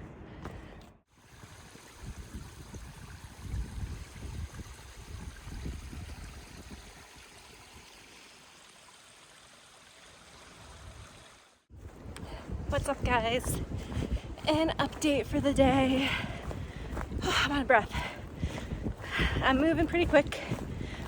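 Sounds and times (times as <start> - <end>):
wind rumbling on microphone: 0.0 - 8.0, 10.6 - 21.0
running water: 1.1 - 11.7.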